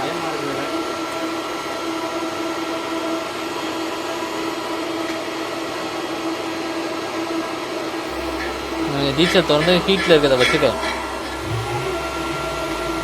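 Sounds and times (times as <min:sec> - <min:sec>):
oil burner rushing and humming: 0:08.0 - 0:13.0.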